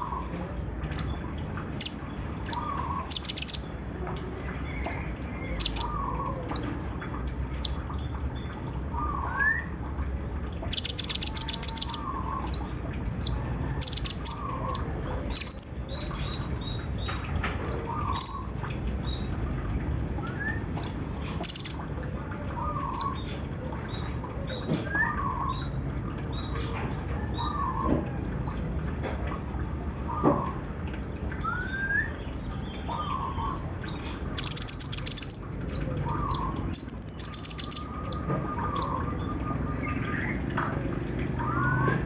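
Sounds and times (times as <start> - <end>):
high bird chirps: 1.8 - 3.7, 4.7 - 6.7, 7.6 - 7.8, 10.7 - 16.8, 17.6 - 18.5, 20.8 - 21.8, 32.9 - 40.3.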